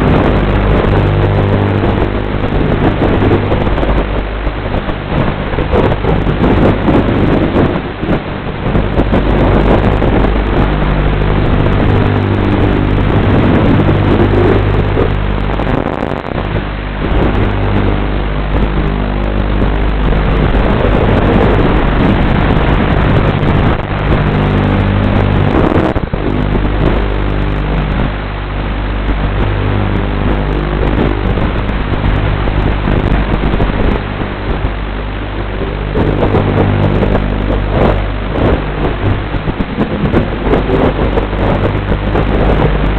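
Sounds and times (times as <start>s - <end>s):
quadcopter motors buzzing: 0.0s - 28.2s.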